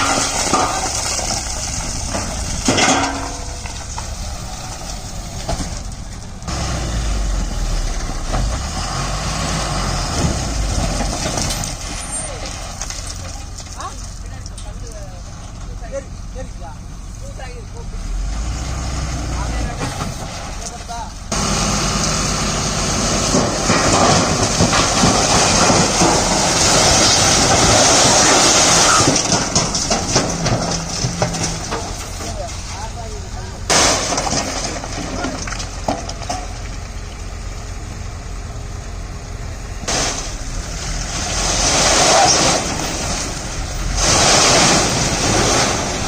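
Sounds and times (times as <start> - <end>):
rattling clatter: 0.0 - 6.5, 23.2 - 36.9
heavy diesel engine running: 0.0 - 46.0.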